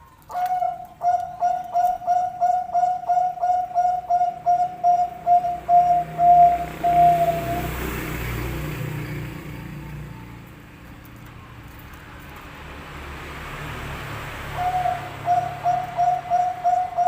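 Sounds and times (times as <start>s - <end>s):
dove cooing: 0.0s - 7.8s, 14.5s - 17.0s.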